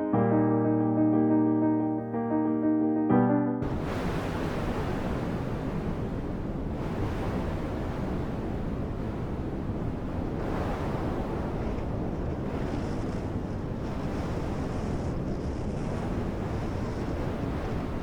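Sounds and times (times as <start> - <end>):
wind rumbling on microphone: 3.6 - 18.0.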